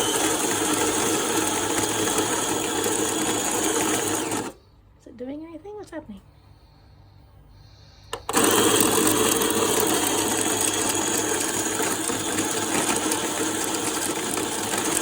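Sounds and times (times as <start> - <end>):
coffee grinder grinding beans: 0.0 - 4.6, 8.2 - 15.0.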